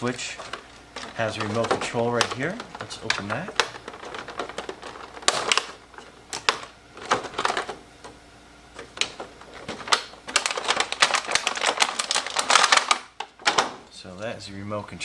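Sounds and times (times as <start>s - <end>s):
packaging crinkling and crackling: 0.0s - 14.3s.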